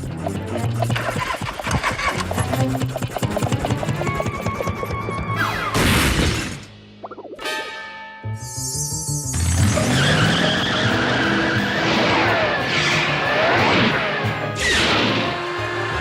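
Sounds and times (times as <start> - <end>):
cartoon chase music: 0.0 - 6.0, 7.1 - 16.0
screeching skid sound effects: 9.6 - 16.0.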